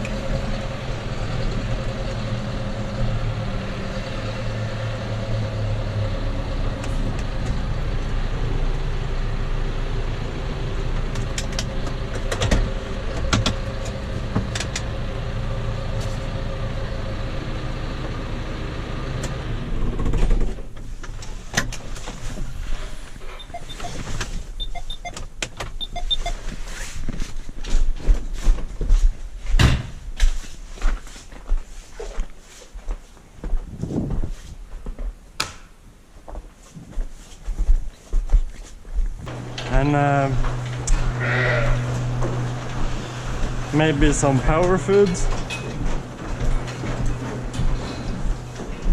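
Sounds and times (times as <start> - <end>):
tractor engine running: 0.0 - 28.7, 39.2 - 48.9
knocks and clatter: 11.0 - 14.9, 19.8 - 22.5, 42.0 - 48.9.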